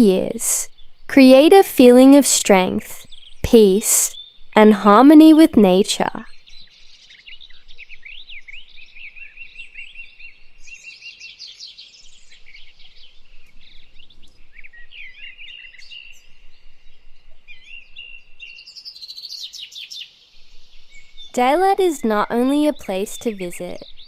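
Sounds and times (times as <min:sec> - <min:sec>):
songbirds singing: 0:00.0 - 0:24.0.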